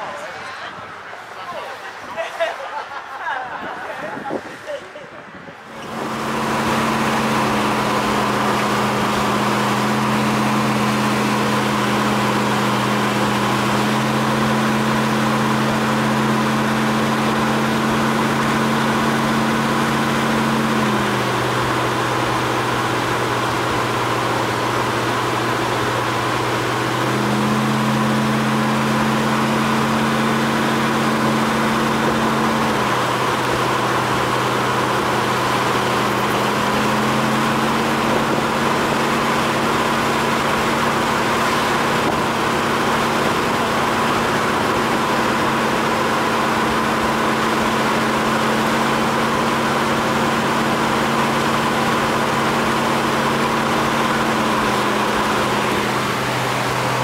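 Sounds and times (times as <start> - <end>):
car engine drone: 0.0 - 57.0
road and wind noise: 0.0 - 57.0.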